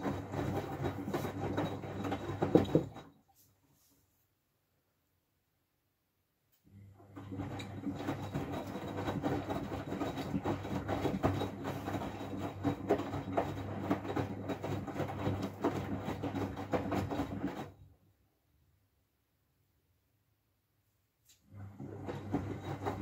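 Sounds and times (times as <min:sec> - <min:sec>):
laundry tumbling in water: 0:00.0 - 0:03.1
washing machine motor hum: 0:00.0 - 0:03.2, 0:06.7 - 0:18.0, 0:21.4 - 0:23.0.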